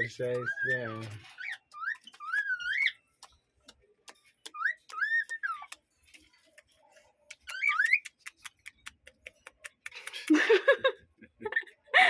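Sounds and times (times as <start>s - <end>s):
quick ticks: 3.2s - 10.3s.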